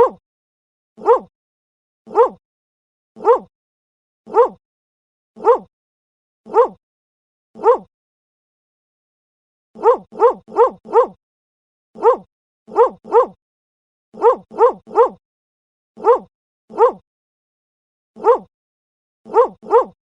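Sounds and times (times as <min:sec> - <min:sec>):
dog barking: 0:00.0 - 0:00.2, 0:01.0 - 0:01.3, 0:02.1 - 0:02.4, 0:03.2 - 0:03.5, 0:04.3 - 0:04.6, 0:05.4 - 0:05.7, 0:06.5 - 0:06.8, 0:07.6 - 0:07.9, 0:09.8 - 0:11.2, 0:12.0 - 0:13.4, 0:14.2 - 0:15.2, 0:16.0 - 0:17.0, 0:18.2 - 0:18.5, 0:19.3 - 0:20.0.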